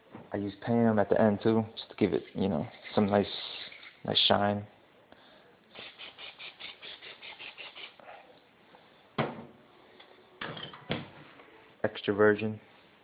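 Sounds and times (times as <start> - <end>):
aerosol can spraying: 5.8 - 8.0.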